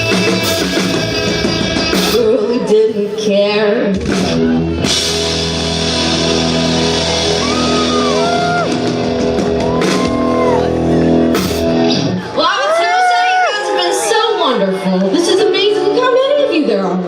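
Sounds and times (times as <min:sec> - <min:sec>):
rock band electric guitars: 0:00.0 - 0:12.6
crowd shouts and whoops: 0:06.6 - 0:17.0.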